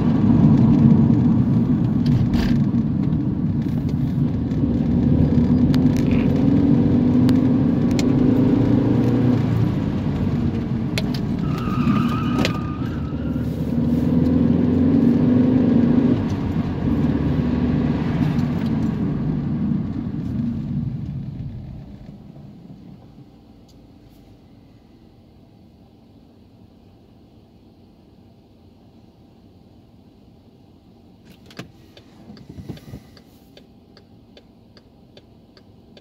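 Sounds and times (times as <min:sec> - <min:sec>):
car engine accelerating: 0:00.0 - 0:23.9.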